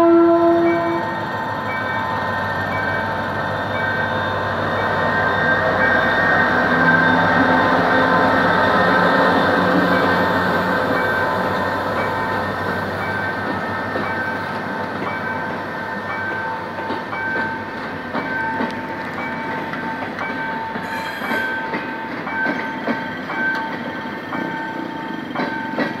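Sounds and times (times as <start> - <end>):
train coaches rolling past: 0.0 - 26.0
wheels clacking over rail joints: 6.6 - 26.0
high-pitched wheel squeal: 20.8 - 21.6.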